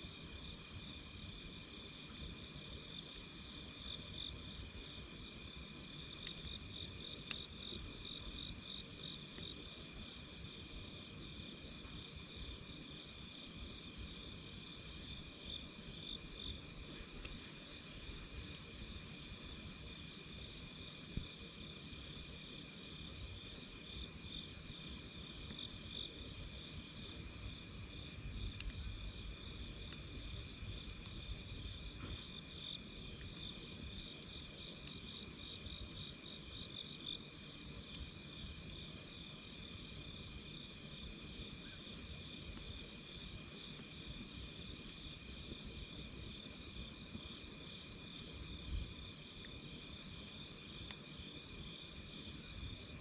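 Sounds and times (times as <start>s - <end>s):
campfire crackling and popping: 0.1s - 53.0s
crickets chirping: 0.1s - 53.0s.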